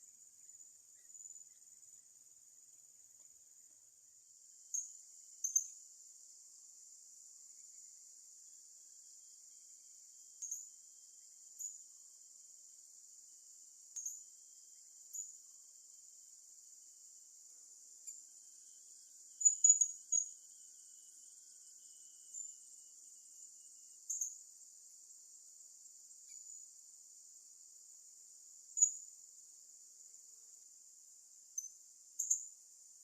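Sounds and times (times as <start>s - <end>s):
high-pitched insect drone: 10.4s - 12.6s, 13.9s - 16.8s, 17.5s - 30.7s, 31.3s - 33.0s.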